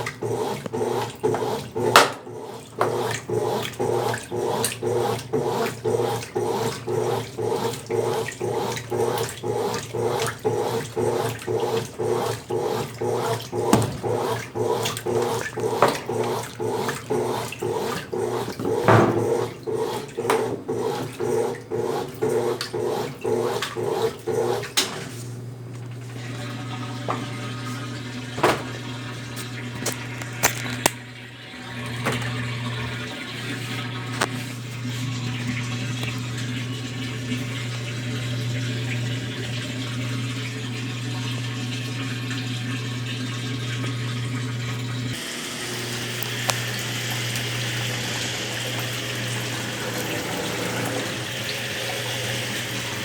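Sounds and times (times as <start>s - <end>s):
water sounds: 0.0s - 24.8s, 25.8s - 53.0s
washing machine agitating: 0.0s - 53.0s
electrical hum: 43.6s - 53.0s.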